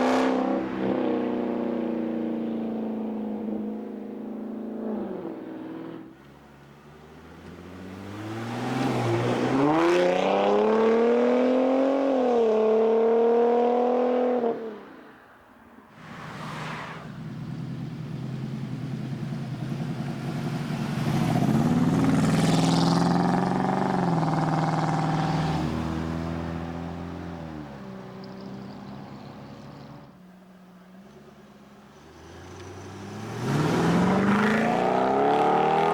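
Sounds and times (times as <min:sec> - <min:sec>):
car engines accelerating hard: 0:00.0 - 0:14.5, 0:16.0 - 0:30.1, 0:31.3 - 0:35.9
rush of passing car: 0:15.9 - 0:27.8.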